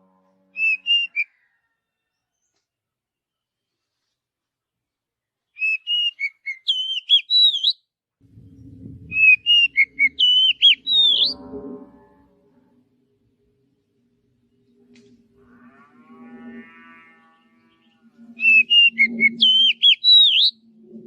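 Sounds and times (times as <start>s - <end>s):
bird singing whistled notes: 0.6s - 1.3s, 5.6s - 7.8s, 8.5s - 11.4s, 18.4s - 20.6s
faint low drone: 8.2s - 18.9s.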